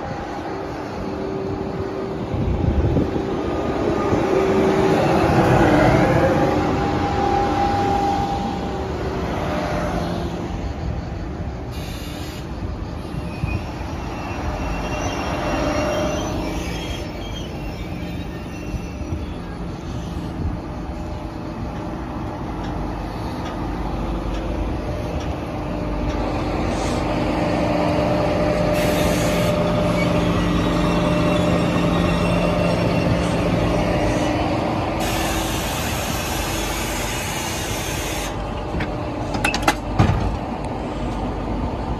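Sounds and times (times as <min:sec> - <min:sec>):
train equipment humming: 0:00.0 - 0:41.9
compressed air hissing: 0:11.7 - 0:12.6, 0:28.8 - 0:29.6, 0:35.0 - 0:38.4.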